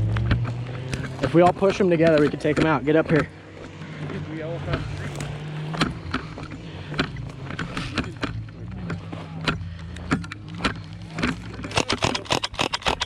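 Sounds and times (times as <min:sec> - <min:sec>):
small engine running: 0:00.0 - 0:13.0
airsoft guns firing: 0:11.7 - 0:13.0.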